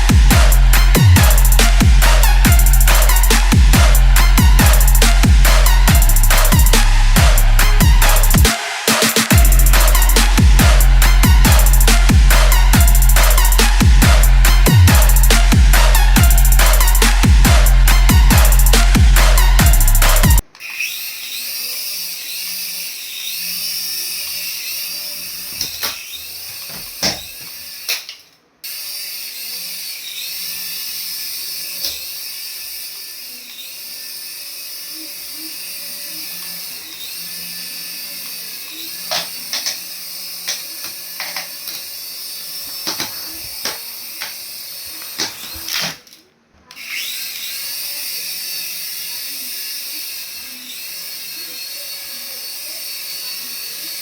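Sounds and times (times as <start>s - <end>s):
toy electric motor whirring: 0.0s - 54.0s
plastic parts clicking and knocking: 39.1s - 41.9s, 42.8s - 44.4s.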